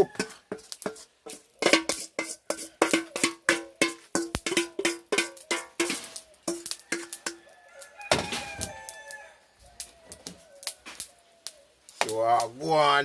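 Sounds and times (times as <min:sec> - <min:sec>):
metal spoon clanking in a pot: 0:00.2 - 0:07.4.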